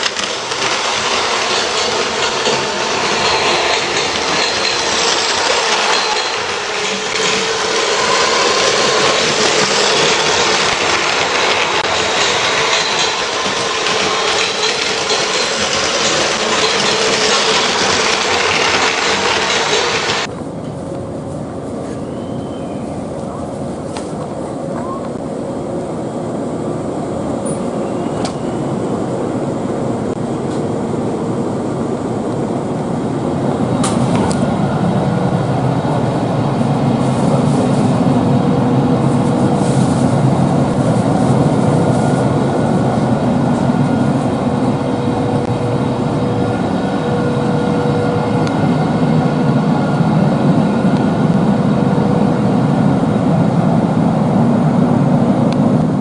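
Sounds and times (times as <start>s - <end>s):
electric train rumbling: 0.0s - 56.0s.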